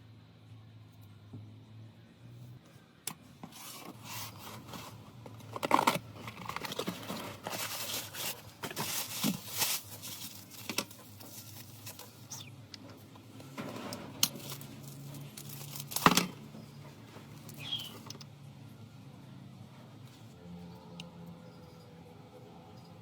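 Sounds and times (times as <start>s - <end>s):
scraping and handling strokes: 3.4s - 16.2s.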